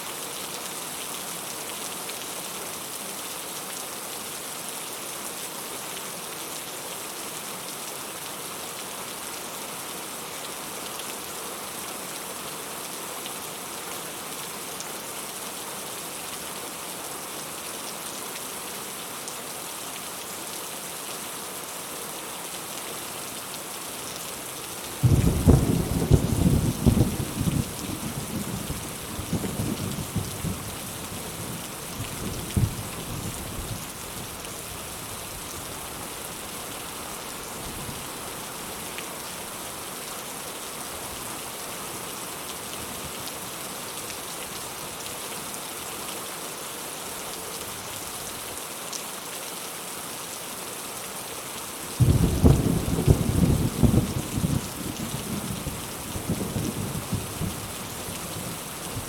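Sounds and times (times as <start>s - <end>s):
heavy rain hissing: 23.0s - 42.0s, 51.8s - 59.0s
thunder rumbling and cracking: 25.0s - 28.7s, 52.0s - 54.8s.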